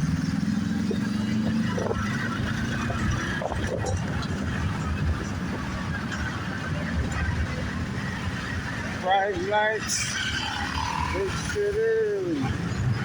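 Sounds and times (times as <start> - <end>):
road noise: 0.0 - 13.0
wind rush: 0.8 - 9.0.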